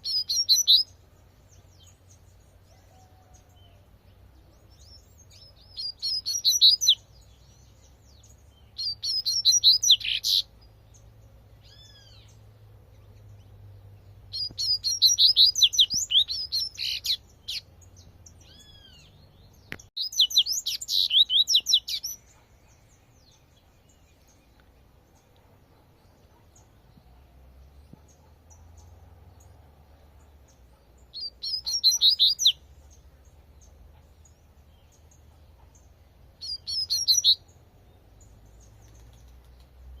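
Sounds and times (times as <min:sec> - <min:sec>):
bird singing high rapid notes: 0:00.0 - 0:02.0, 0:04.6 - 0:11.0, 0:14.2 - 0:22.4, 0:31.1 - 0:32.7, 0:36.4 - 0:37.5.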